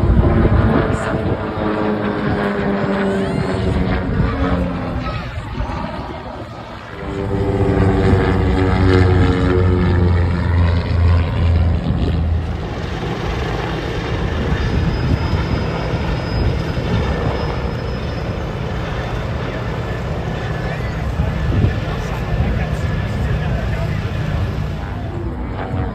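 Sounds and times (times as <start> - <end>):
propeller airplane engine drone: 0.0 - 25.9
rushing noise: 9.9 - 25.3.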